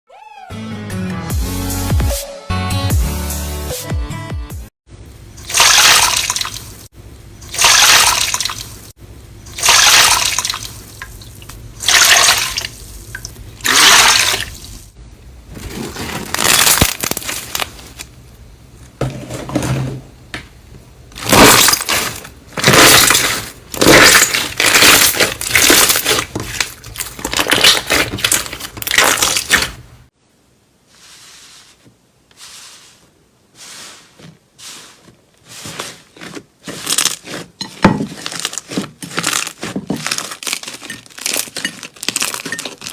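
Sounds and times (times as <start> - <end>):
slime squishing by hand: 21.2 - 29.8, 33.6 - 42.9.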